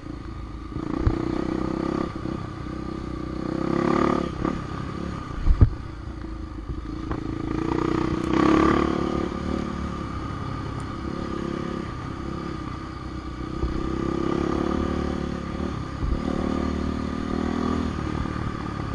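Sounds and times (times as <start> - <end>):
dirt bike engine revving: 0.7 - 5.2, 7.1 - 10.2, 13.5 - 18.9.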